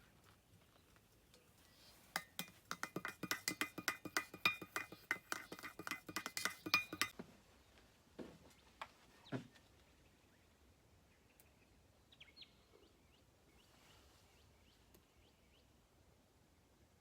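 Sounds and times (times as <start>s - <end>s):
small hard objects clinking: 2.2s - 7.1s.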